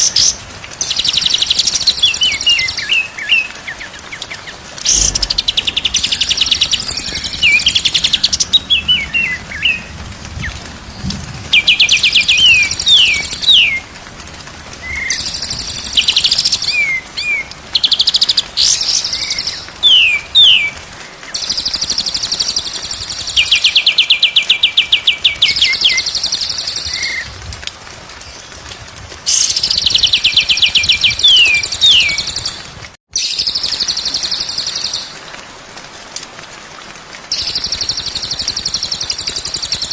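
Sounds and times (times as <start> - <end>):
songbird trilling and whistling: 29.4 - 32.6.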